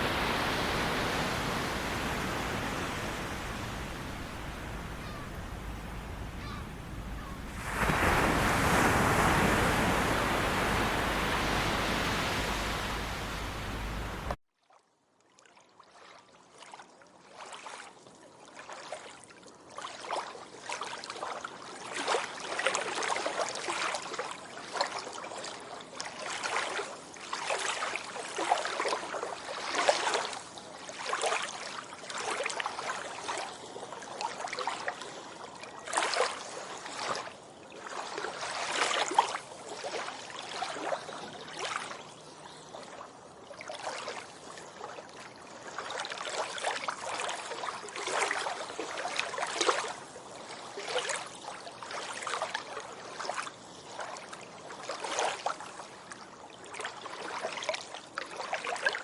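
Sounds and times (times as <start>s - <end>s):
small waves washing onto beach: 0.0s - 14.4s.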